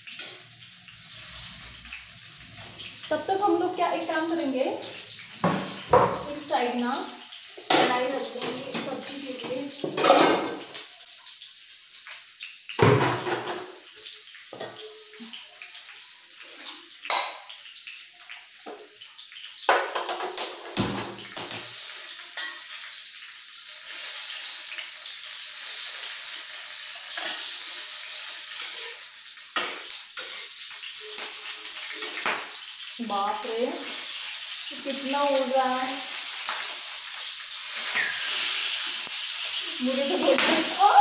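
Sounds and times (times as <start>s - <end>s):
chillies sizzling in hot oil: 0.0s - 41.0s
metal cookware clanking: 7.6s - 10.8s, 17.1s - 17.5s.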